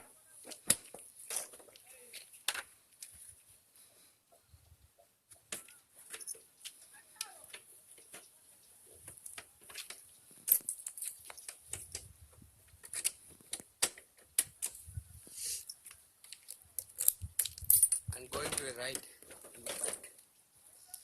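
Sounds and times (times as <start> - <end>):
motorcycle parts clicking and knocking: 9.0 - 14.9, 15.7 - 20.1.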